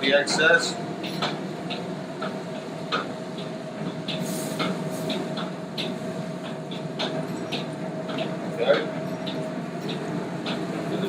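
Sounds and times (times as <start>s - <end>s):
utensil clicks and taps: 9.2s - 10.6s.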